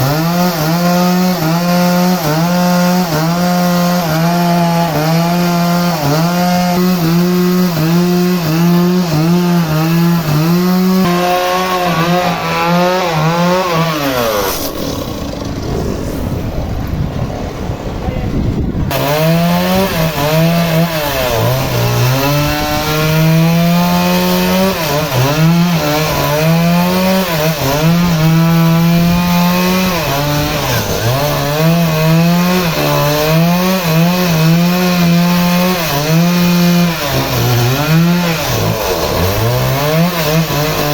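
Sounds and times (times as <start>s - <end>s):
engine-driven saw cutting wood: 0.0s - 16.6s, 18.9s - 40.9s
low rumble of cutting: 0.0s - 40.9s.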